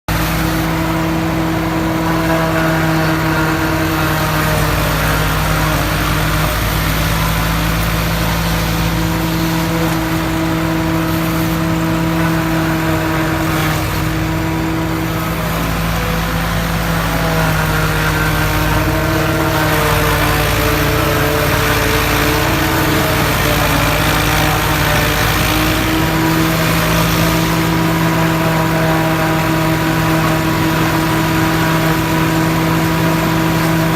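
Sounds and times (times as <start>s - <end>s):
silage choppers running: 0.1s - 33.9s.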